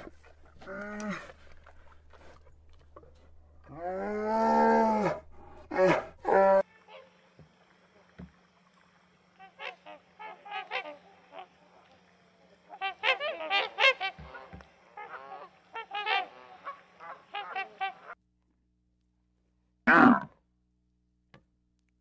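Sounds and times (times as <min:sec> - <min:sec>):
drawn-out swan call: 0:09.4 - 0:11.7, 0:12.7 - 0:18.2.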